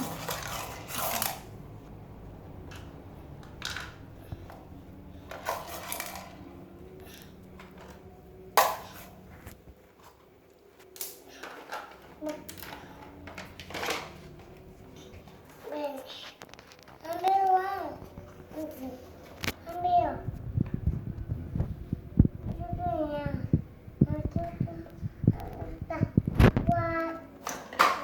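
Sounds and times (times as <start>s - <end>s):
toy truck clattering and knocking: 0.0s - 1.5s, 2.7s - 4.0s, 5.3s - 6.4s, 11.0s - 14.2s.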